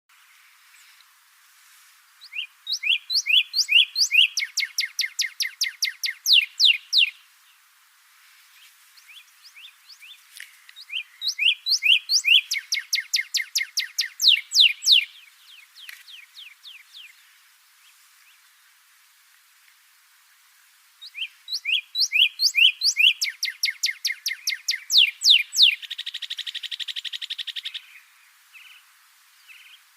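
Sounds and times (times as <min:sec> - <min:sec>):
cardinal singing whistles: 0:02.3 - 0:07.2, 0:10.8 - 0:15.2, 0:21.1 - 0:25.8.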